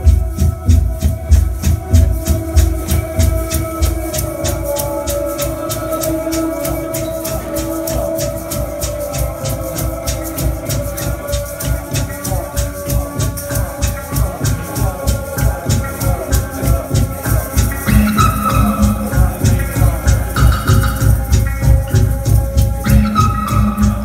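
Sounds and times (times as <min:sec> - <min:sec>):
sustained electronic tones: 0:10.4 - 0:24.0.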